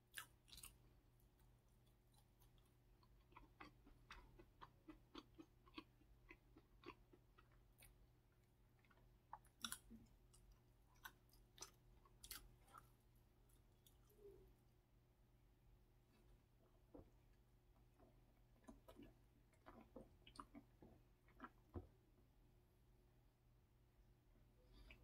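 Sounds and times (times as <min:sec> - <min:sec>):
close-miked chewing: 0:00.1 - 0:14.6, 0:17.9 - 0:21.9.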